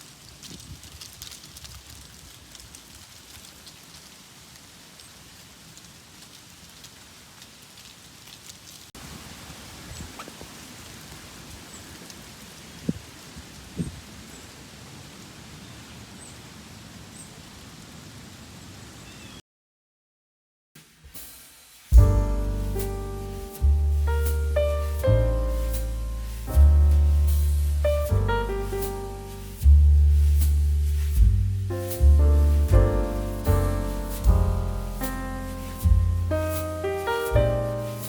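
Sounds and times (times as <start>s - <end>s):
bike tyre and wind noise: 0.0s - 3.5s, 21.9s - 38.0s.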